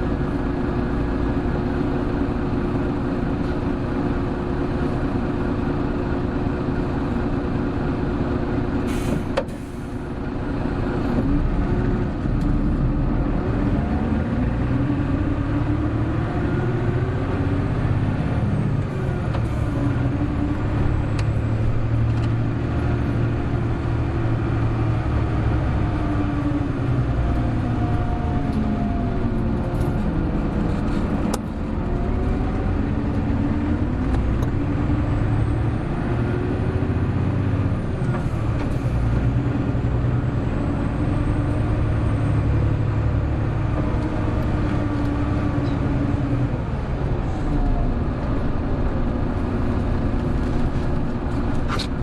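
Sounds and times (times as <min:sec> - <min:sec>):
bus diesel engine accelerating: 0:00.0 - 0:52.0.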